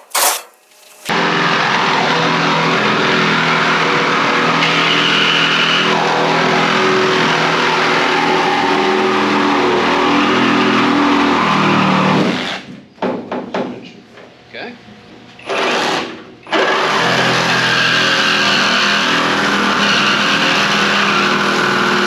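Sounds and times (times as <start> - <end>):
reciprocating saw cutting metal: 0.0 - 1.1.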